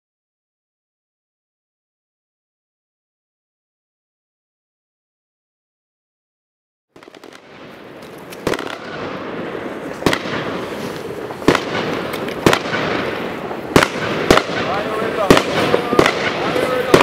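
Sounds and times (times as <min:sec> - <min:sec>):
fireworks bangs: 0:07.0 - 0:17.0
fireworks hissing and crackling: 0:07.0 - 0:17.0.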